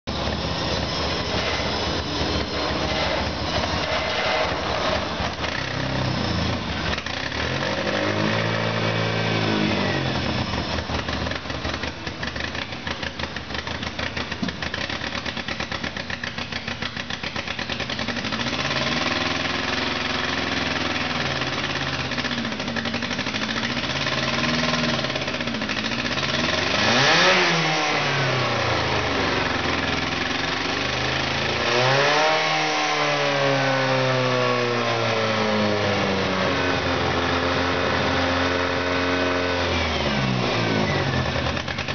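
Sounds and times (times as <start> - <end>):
car engine idling and revving: 0.1 - 41.9.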